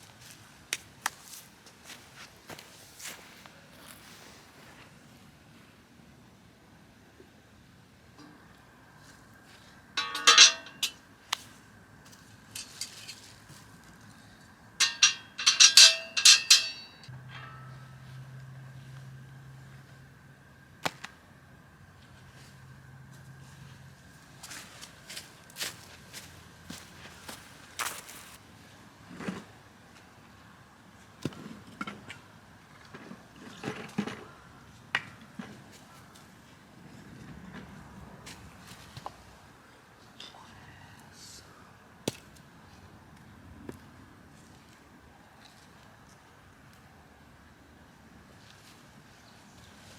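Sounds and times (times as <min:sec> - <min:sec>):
soft rustling: 0:01.1 - 0:05.1, 0:24.4 - 0:28.4
metal items clinking together: 0:10.0 - 0:11.0, 0:14.8 - 0:17.7.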